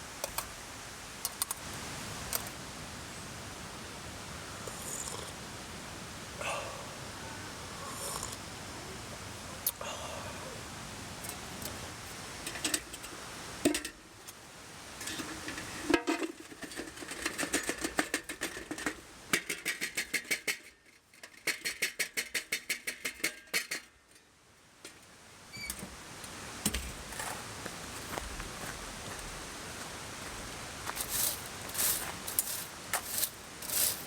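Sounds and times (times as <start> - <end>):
stream rushing: 0.0 - 4.6, 5.4 - 15.9, 27.4 - 34.0
camp gear clicking: 1.2 - 1.6.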